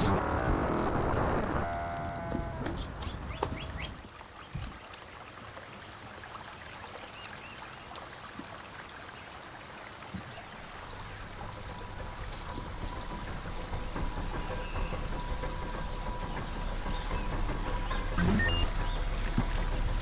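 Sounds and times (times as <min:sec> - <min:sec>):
water running like stream: 0:00.0 - 0:20.0
low steady hum: 0:10.4 - 0:20.0.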